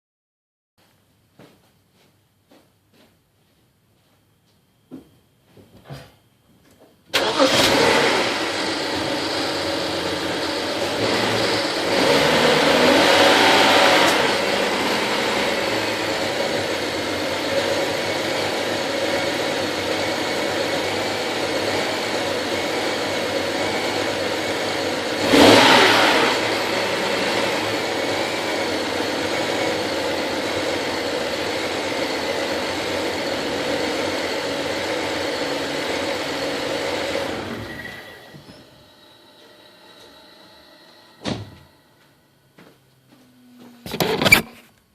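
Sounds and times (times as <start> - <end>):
car engine starting and idling: 7.1 - 41.8.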